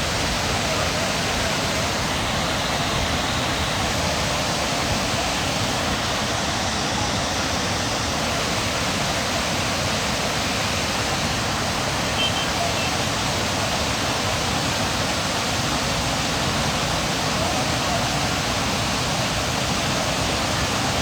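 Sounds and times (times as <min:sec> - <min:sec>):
rushing water: 0:00.0 - 0:21.0.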